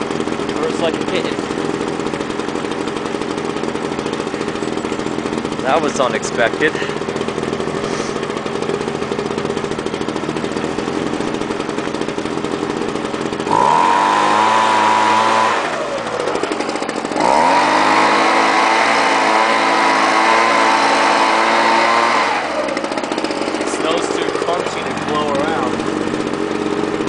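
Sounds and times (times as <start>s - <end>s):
leaf blower engine revving: 0.0s - 27.0s.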